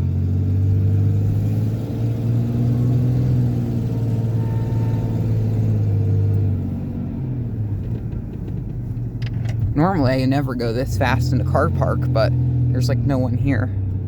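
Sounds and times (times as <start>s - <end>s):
truck engine and tyre drone: 0.0s - 14.0s.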